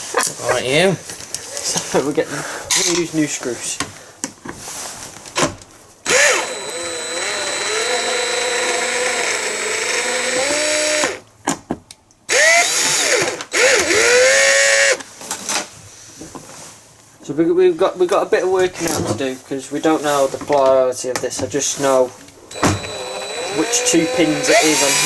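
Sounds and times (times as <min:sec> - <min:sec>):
cordless drill driving screws: 0:06.0 - 0:11.2, 0:12.3 - 0:15.0, 0:22.5 - 0:25.0.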